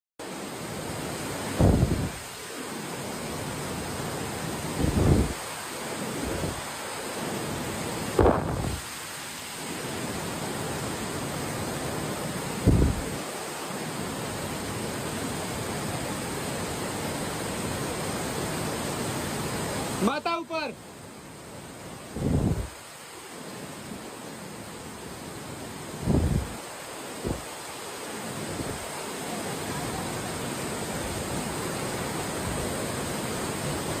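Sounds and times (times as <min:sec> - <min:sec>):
river water rushing: 0:00.2 - 0:34.0
low thumps: 0:08.2 - 0:08.8.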